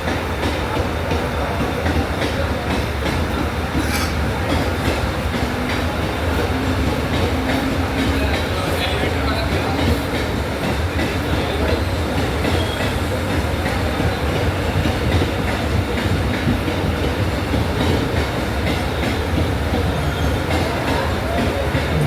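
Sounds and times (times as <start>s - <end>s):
wheels clattering over rail joints: 0.0s - 12.8s
train rumbling: 0.0s - 22.0s.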